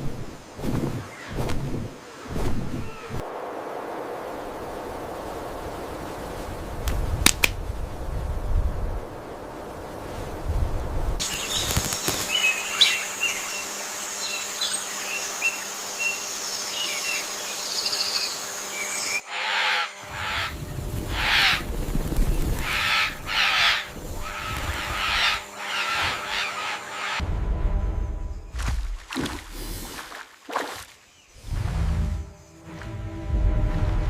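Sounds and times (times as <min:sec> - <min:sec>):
rough noisy swells: 0:03.2 - 0:06.8
birds chirping: 0:11.2 - 0:27.2.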